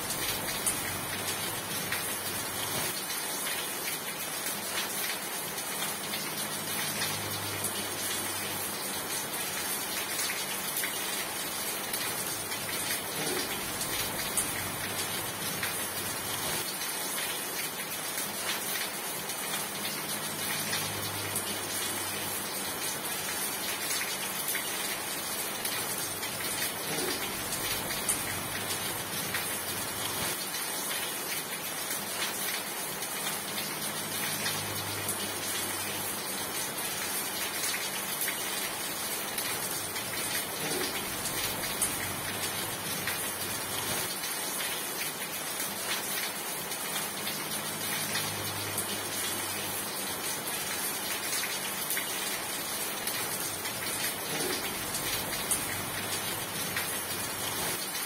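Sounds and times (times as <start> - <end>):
steady rain patter: 0.0 - 58.0.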